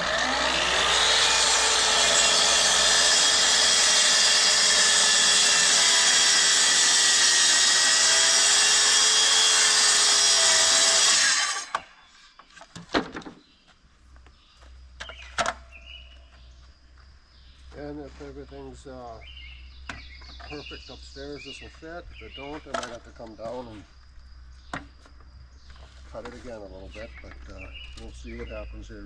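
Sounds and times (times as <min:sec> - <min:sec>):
track saw cutting board: 0:00.0 - 0:12.0.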